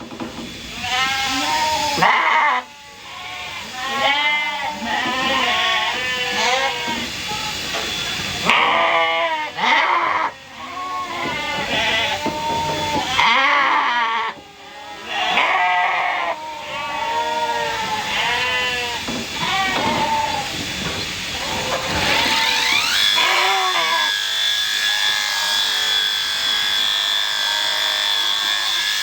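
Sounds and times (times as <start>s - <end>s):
electric shears whining: 0.0s - 29.0s
sheep bleating: 0.8s - 7.2s, 8.4s - 20.6s, 21.4s - 24.1s.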